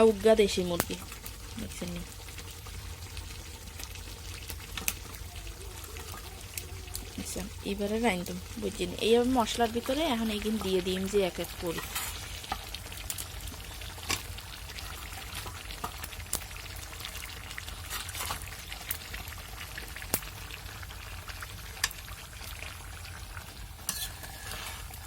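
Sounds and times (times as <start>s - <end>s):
chicken sizzling in hot oil: 0.0s - 25.0s
sharp crackling pops: 0.7s - 1.8s, 2.5s - 5.2s, 20.0s - 20.6s, 21.6s - 22.2s.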